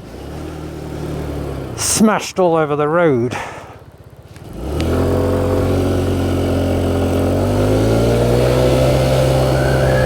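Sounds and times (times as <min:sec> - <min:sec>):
motorcycle engine accelerating: 0:03.8 - 0:10.0.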